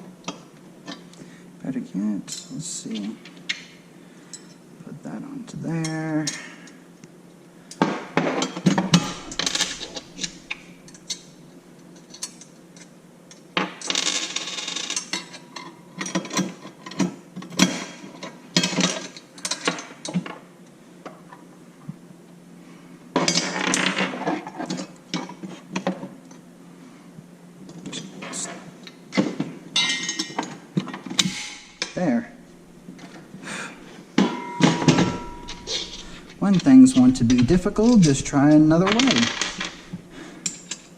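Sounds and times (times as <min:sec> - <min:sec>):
faint steady hum: 0:00.0 - 0:13.6, 0:29.7 - 0:40.9
metal parts clinking and knocking: 0:08.7 - 0:11.2, 0:34.3 - 0:40.9
metal rattling and scraping: 0:08.7 - 0:11.3, 0:31.2 - 0:40.9.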